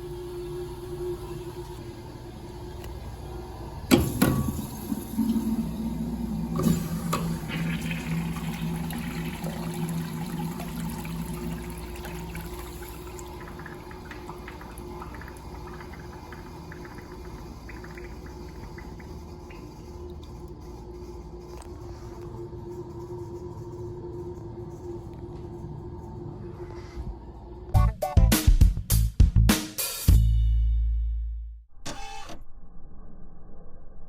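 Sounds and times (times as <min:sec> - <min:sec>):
toilet flushing: 0:00.0 - 0:21.7.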